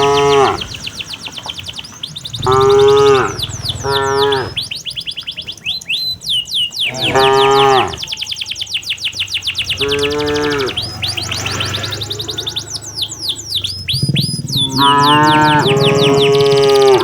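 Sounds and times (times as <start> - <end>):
cattle mooing: 0.0 - 0.8, 2.4 - 4.7, 6.9 - 8.2, 9.6 - 17.0
birds chirping rapidly: 0.0 - 17.0.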